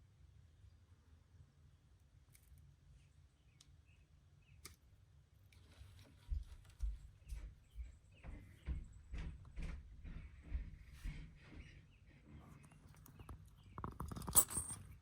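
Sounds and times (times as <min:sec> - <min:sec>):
regular low knocks: 0:06.9 - 0:12.6.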